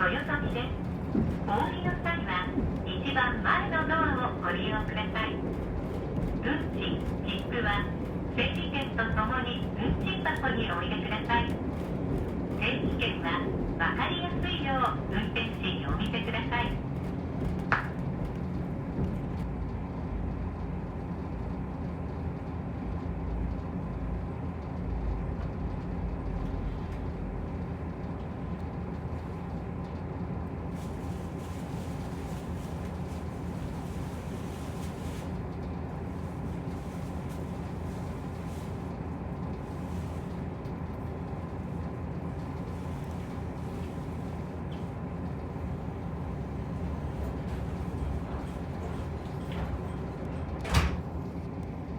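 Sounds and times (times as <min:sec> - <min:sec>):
engine drone: 0:00.0 - 0:22.0
train wheels rumbling on track: 0:00.0 - 0:51.9.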